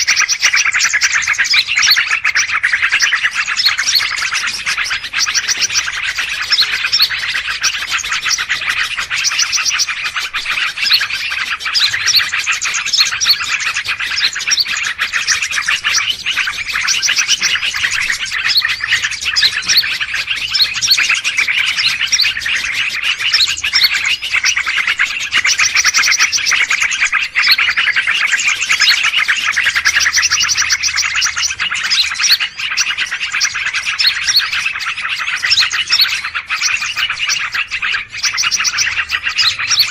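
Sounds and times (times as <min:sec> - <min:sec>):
chorus of birds chirping: 0:00.0 - 0:39.9.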